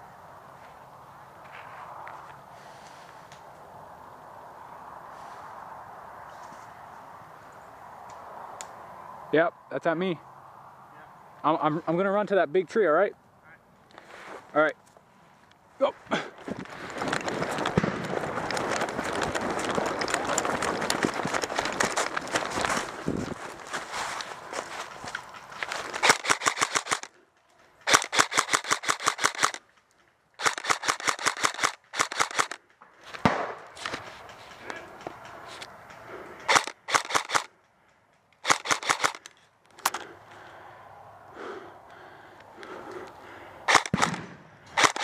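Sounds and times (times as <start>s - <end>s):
airsoft guns firing bursts: 26.0s - 27.1s, 27.8s - 29.6s, 30.4s - 32.6s, 36.5s - 37.5s, 38.4s - 39.3s, 43.7s - 45.0s.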